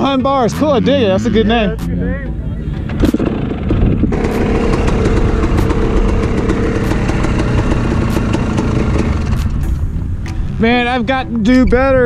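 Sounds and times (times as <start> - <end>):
motocross bike engine running: 3.3 - 9.9
sharp click: 9.3 - 10.4.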